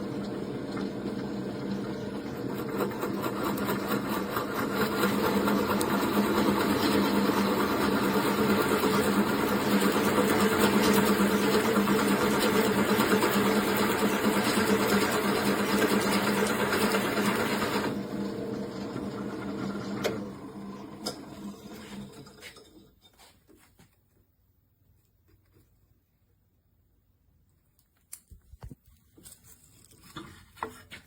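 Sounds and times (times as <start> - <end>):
electric drill motor running: 1.2 - 21.7.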